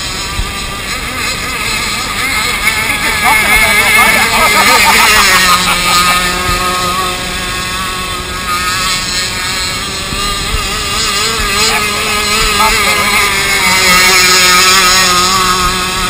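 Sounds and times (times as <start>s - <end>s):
model boat engine high revs: 0.0s - 16.0s.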